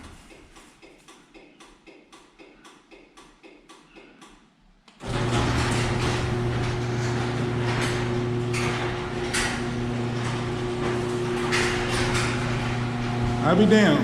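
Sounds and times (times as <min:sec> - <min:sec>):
garage door opener humming: 0:05.0 - 0:14.0
garage door rattling on track: 0:05.0 - 0:14.0.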